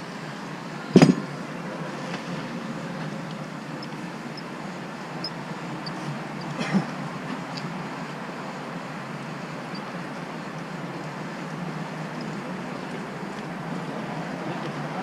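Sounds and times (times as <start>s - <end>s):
loud metallic clank: 1.0s - 1.3s.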